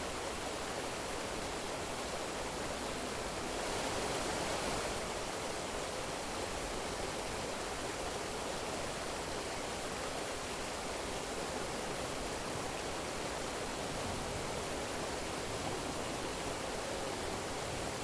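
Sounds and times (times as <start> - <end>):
flowing water rushing: 0.0 - 18.0.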